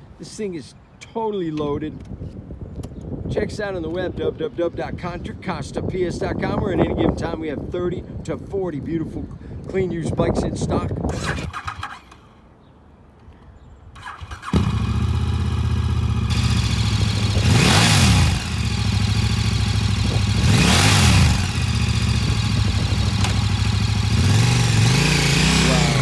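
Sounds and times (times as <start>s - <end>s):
motorcycle engine starting and idling: 11.1s - 12.4s, 13.9s - 26.0s
engine revving: 14.1s - 26.0s.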